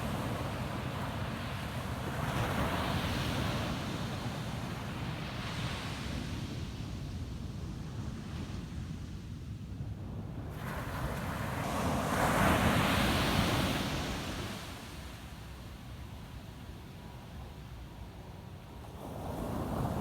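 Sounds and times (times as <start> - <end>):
low rumble of surf: 0.0 - 20.0.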